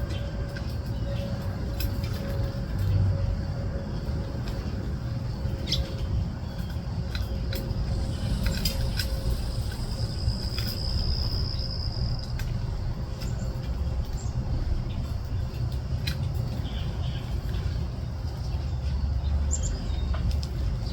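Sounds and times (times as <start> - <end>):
steady low rumble: 0.0 - 20.9
thin high whine: 7.6 - 13.0.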